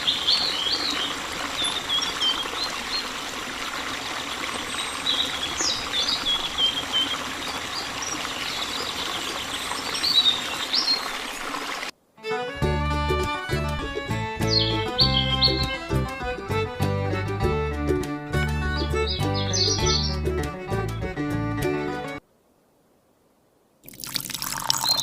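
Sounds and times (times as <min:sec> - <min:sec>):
small birds chirping: 0:00.0 - 0:03.4, 0:04.0 - 0:11.5, 0:14.4 - 0:15.8, 0:18.7 - 0:20.4
water trickling: 0:00.0 - 0:11.9, 0:23.8 - 0:25.0
music: 0:12.2 - 0:22.2.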